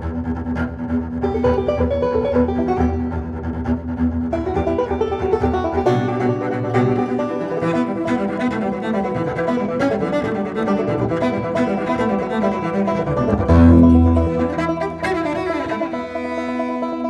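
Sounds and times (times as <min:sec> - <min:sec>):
string instrument background music: 0:00.0 - 0:17.0
low bass line: 0:13.1 - 0:15.1.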